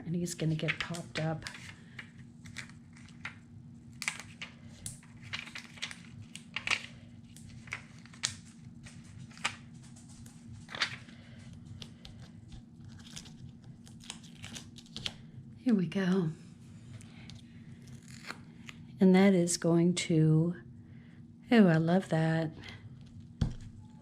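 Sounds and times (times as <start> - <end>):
steady low hum: 0.0 - 24.0
paper rustling and crinkling: 0.4 - 15.2.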